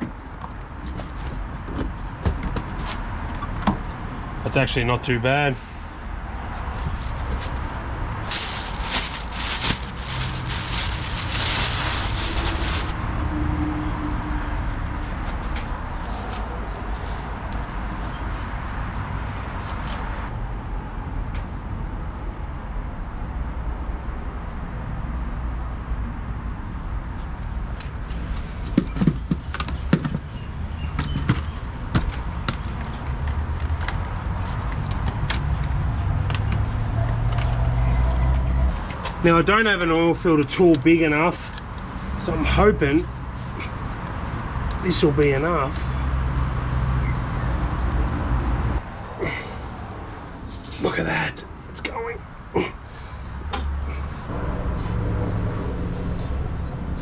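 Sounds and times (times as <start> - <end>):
engine humming: 5.6 - 13.0.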